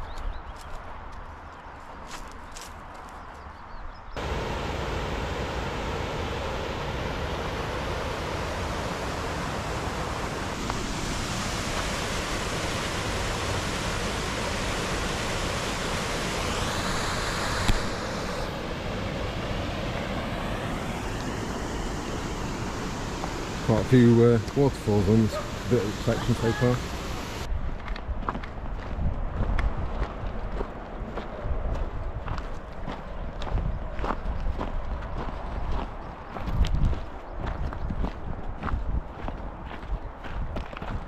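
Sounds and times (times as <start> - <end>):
waterfall rushing: 4.2 - 27.5.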